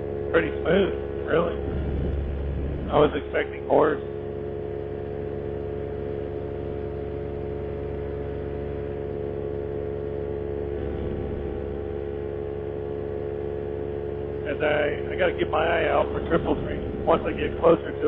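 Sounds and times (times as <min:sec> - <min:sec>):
paramotor engine drone: 0:00.0 - 0:18.0.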